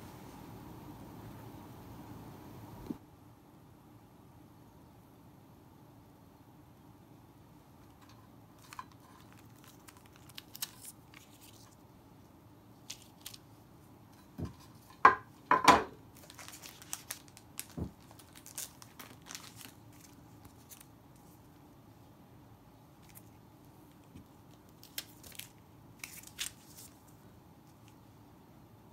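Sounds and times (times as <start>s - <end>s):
dry material crinkling and tearing: 8.0s - 11.8s, 12.7s - 13.6s, 16.1s - 21.6s, 23.0s - 28.0s.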